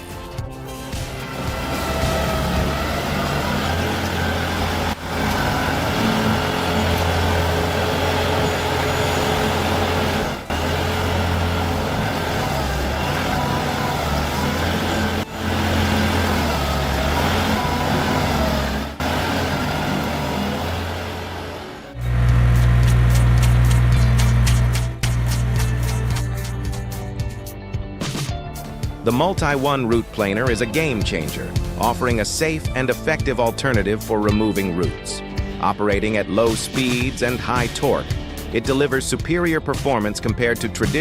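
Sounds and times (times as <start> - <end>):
heavy machinery engine running: 0.8 - 27.0.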